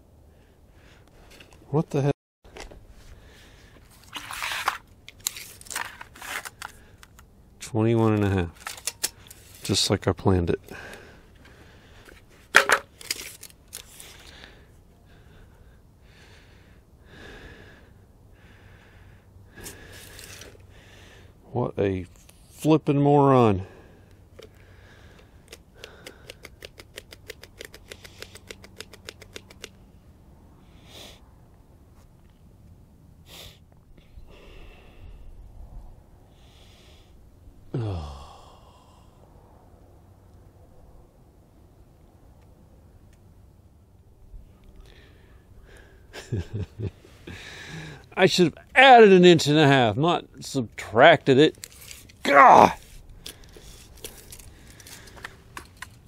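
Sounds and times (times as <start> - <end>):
man breathing: 0.2 - 1.5, 3.0 - 3.9, 10.6 - 12.3, 13.9 - 21.4, 23.6 - 26.6, 33.2 - 39.6, 44.8 - 46.2, 47.0 - 48.2, 52.8 - 55.6
man exhaling and sighing: 33.3 - 35.4, 36.4 - 39.4, 47.2 - 48.2
man groaning: 37.7 - 39.1, 52.2 - 52.8.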